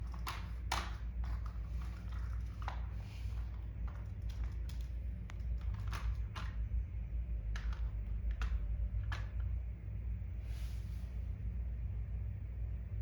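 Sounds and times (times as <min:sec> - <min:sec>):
light clicks and taps: 0:00.0 - 0:06.6
steady low rumble: 0:00.0 - 0:13.0.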